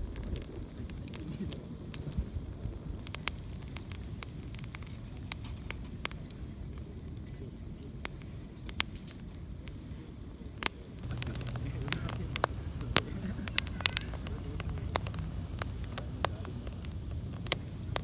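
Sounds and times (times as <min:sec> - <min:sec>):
burning wood popping: 0:00.0 - 0:18.0
campfire crackling: 0:00.0 - 0:18.0
low rumble: 0:11.0 - 0:18.0.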